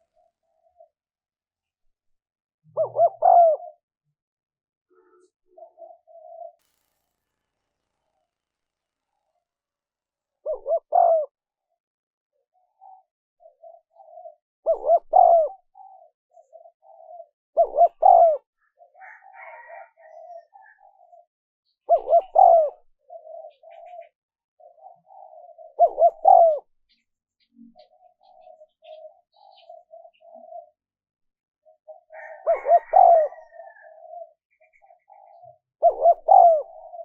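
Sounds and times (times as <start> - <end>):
dove cooing: 0.0 - 0.9, 2.7 - 3.8, 5.5 - 6.6, 10.4 - 11.4, 12.6 - 21.2, 21.9 - 27.0, 27.7 - 30.8, 31.7 - 37.0.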